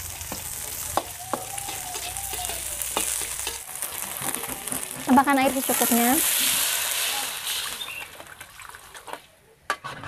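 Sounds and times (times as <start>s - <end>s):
onions sizzling in hot oil: 0.0s - 8.2s.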